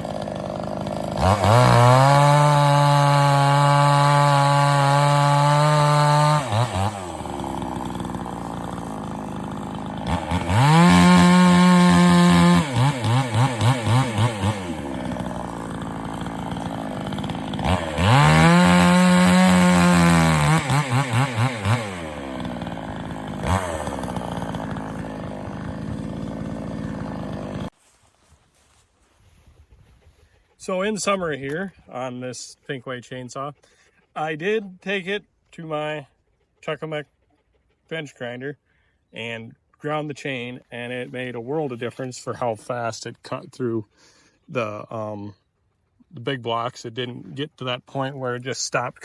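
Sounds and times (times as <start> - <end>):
chainsaw revving and idling: 0.0 - 27.8, 40.5 - 43.5, 46.9 - 49.0.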